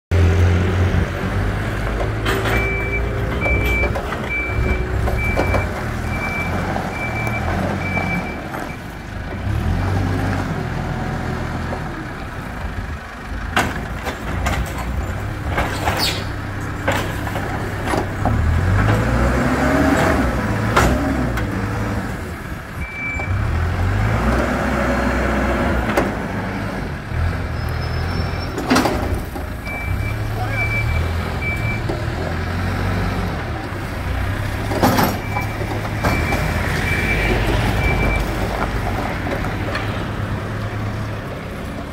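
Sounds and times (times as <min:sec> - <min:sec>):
diesel engines revving: 0:00.1 - 0:41.9
metallic clanks: 0:01.9 - 0:05.8
reversing alarm beeping: 0:02.5 - 0:08.8, 0:22.8 - 0:23.4, 0:29.7 - 0:31.8, 0:35.2 - 0:38.3.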